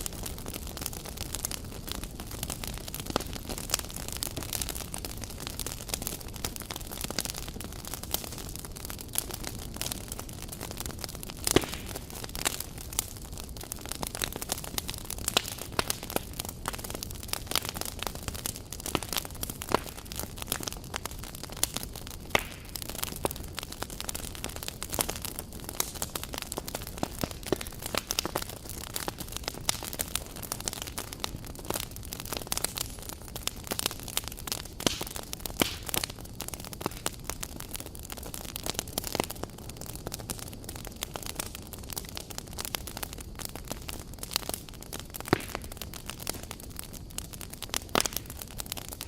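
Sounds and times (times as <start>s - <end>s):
campfire snapping and popping: 0.0s - 49.0s
low rumble of burning: 0.0s - 49.0s.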